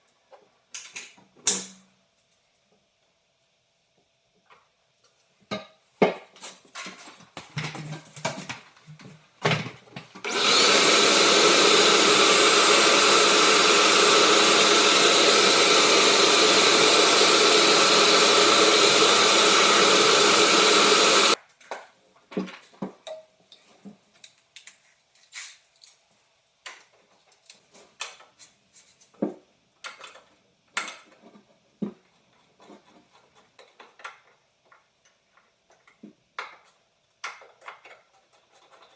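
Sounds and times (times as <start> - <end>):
power tool running: 10.2 - 21.4.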